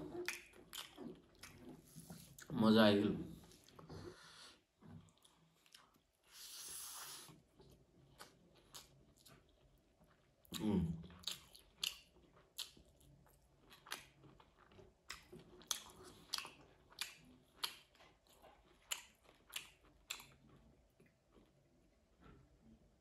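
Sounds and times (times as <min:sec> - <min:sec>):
wet chewing and lip smacking: 0:00.0 - 0:02.5, 0:05.0 - 0:22.4.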